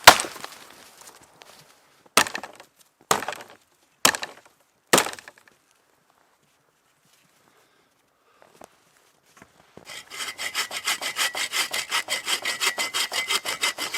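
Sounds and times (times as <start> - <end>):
wood chopping strikes: 0.0 - 0.5, 2.2 - 5.5.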